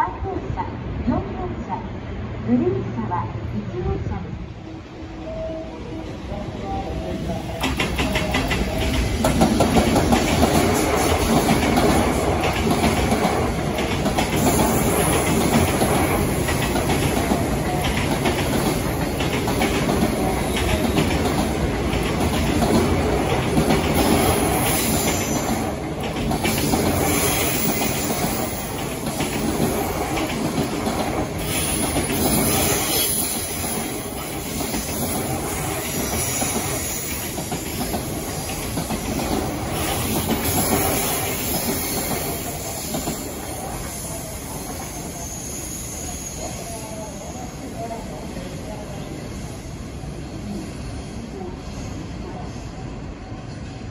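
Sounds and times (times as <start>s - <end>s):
train wheels clattering on rails: 7.4s - 45.2s
train wheel squeal: 24.6s - 25.8s, 26.4s - 30.3s, 31.4s - 47.8s.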